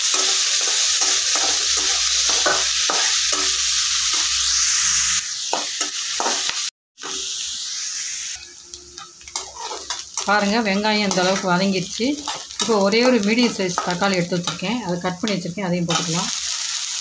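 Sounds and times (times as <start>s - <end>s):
onion sizzling in hot oil: 0.0s - 17.0s
spatula scraping a pan: 8.4s - 10.4s.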